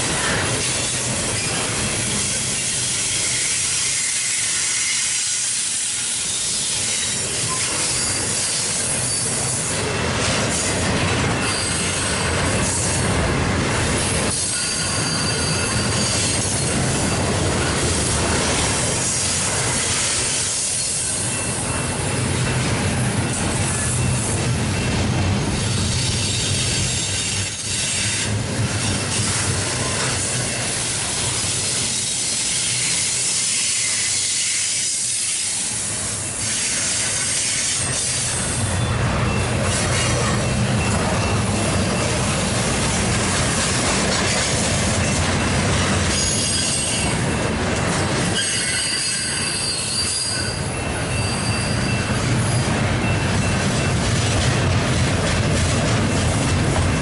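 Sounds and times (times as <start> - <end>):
train wheels clattering on rails: 0.0 - 57.0
high-pitched wheel squeal: 1.4 - 10.7, 11.4 - 13.1, 14.3 - 17.7, 25.6 - 29.0, 31.6 - 35.6, 46.1 - 47.2, 48.3 - 53.6.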